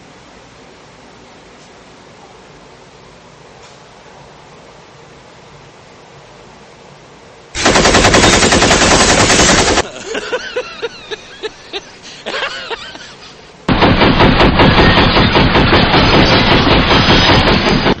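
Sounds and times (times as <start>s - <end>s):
machine-gun fire: 7.6s - 10.0s, 13.7s - 18.0s
sharp pops: 13.7s - 18.0s.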